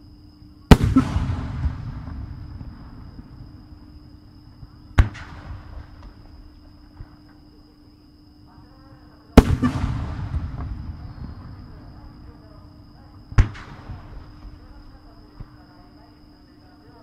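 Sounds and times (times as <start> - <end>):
scattered firework pops: 0.7 - 3.6, 4.6 - 7.4, 9.4 - 12.4, 13.3 - 15.6
firework booms: 0.7 - 7.2, 9.4 - 15.6.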